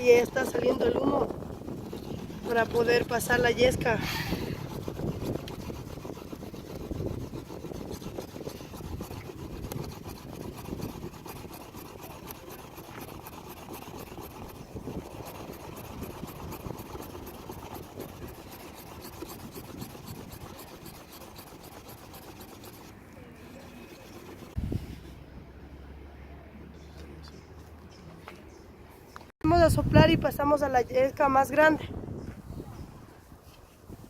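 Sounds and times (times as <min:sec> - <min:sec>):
bamboo rasping strokes: 0:00.0 - 0:25.1.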